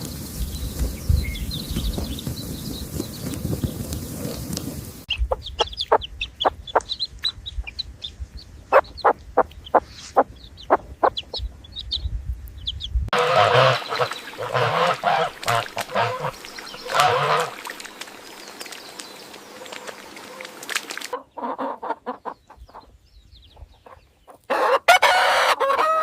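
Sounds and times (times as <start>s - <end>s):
fowl clucking: 13.2s - 17.7s, 21.1s - 22.8s, 23.8s - 26.0s.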